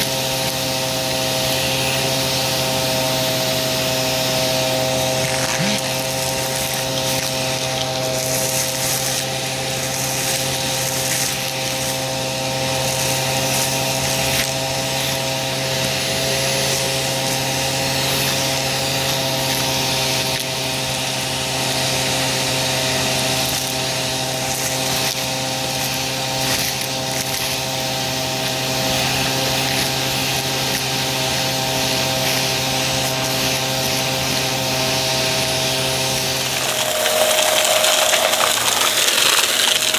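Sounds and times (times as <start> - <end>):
vacuum cleaner motor hum: 36.2 - 39.9
vacuum crunching debris: 36.2 - 39.9.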